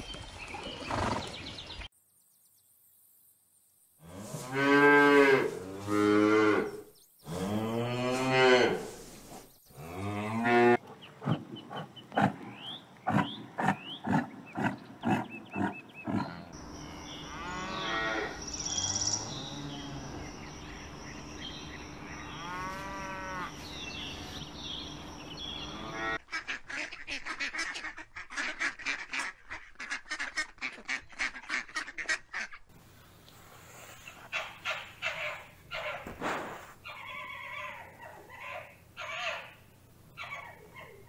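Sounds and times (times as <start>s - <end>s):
pasture ambience: 0.0s - 41.0s
cow mooing: 15.6s - 16.6s, 17.2s - 18.4s, 22.3s - 23.5s
ducks quacking: 25.7s - 32.7s
irregular animal calls: 33.8s - 41.0s.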